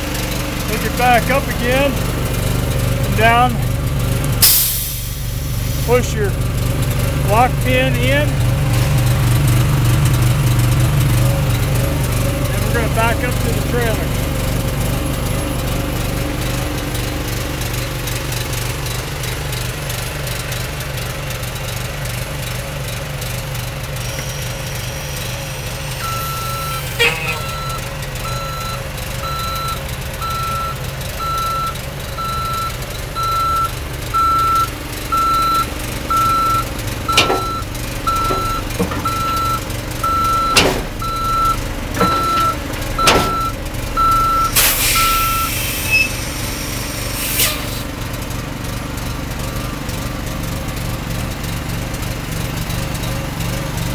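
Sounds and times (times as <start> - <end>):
diesel truck engine running: 0.0 - 53.9
reverse alarm beeping: 26.0 - 46.2
sharp clunks: 36.5 - 39.6, 40.3 - 41.0, 42.0 - 43.5.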